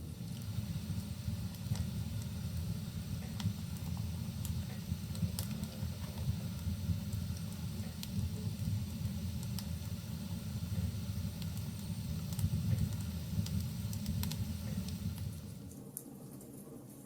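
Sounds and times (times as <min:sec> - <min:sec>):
low roar of flames: 0:00.0 - 0:15.8
burning logs crackling and popping: 0:00.0 - 0:16.1.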